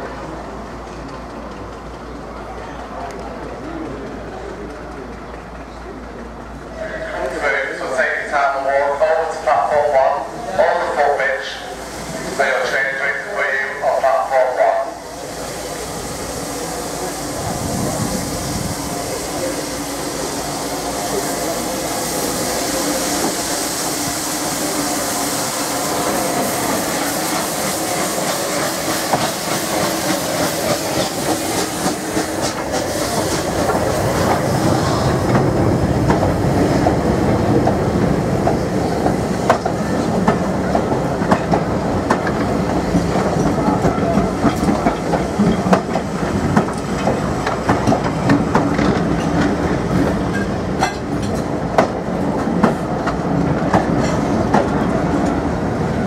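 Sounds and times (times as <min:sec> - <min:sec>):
clickety-clack of train wheels: 0:00.8 - 0:06.6, 0:23.0 - 0:23.6, 0:26.0 - 0:56.0
steam locomotive hiss: 0:06.4 - 0:56.0.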